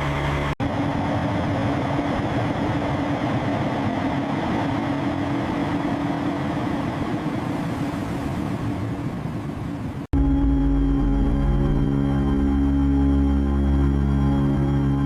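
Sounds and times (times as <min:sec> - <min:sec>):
engine-like mechanical rumble: 0:00.0 - 0:07.2, 0:10.2 - 0:15.0.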